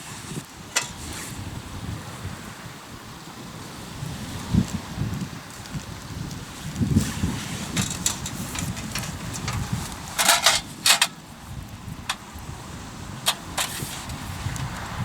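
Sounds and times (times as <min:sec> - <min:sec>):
campfire crackling: 0:00.0 - 0:15.0
sharp pops and cracks of fire: 0:05.5 - 0:12.5, 0:13.2 - 0:15.0.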